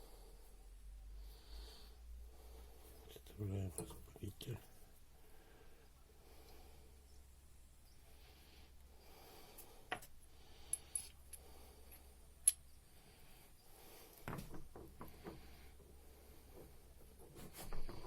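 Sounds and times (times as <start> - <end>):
small metal parts clicking: 10.7 - 11.4.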